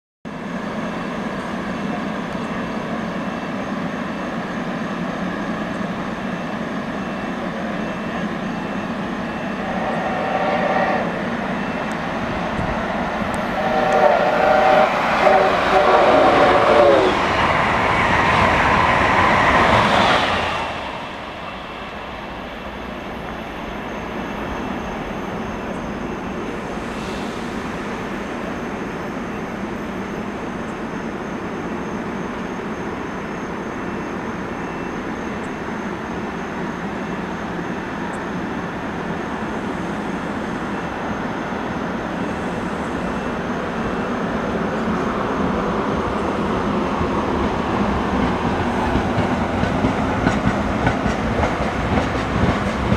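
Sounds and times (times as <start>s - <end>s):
standing train hum: 0.3s - 52.9s
train rushing past: 0.3s - 52.9s
train horn blasts: 9.3s - 11.2s, 13.4s - 17.2s.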